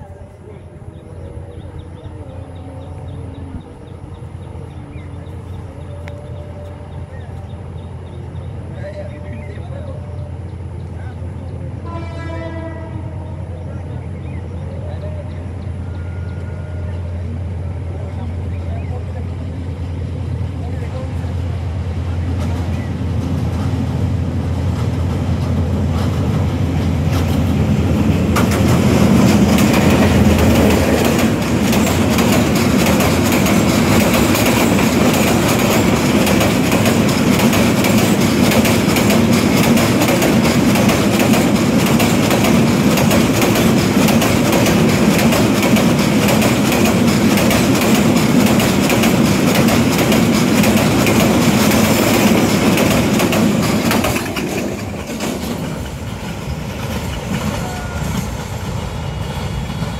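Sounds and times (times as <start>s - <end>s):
train wagons rumbling and clacking: 0.0s - 59.9s.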